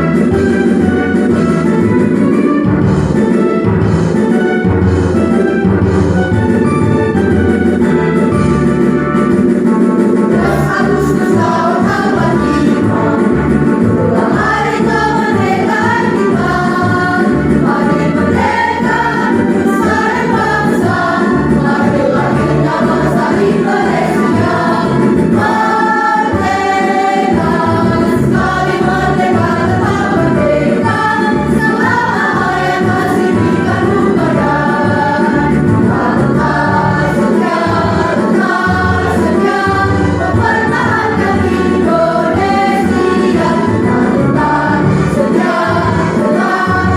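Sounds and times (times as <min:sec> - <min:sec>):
instrumental accompaniment: 0:00.0 - 0:46.9
choir singing in unison: 0:10.3 - 0:46.9.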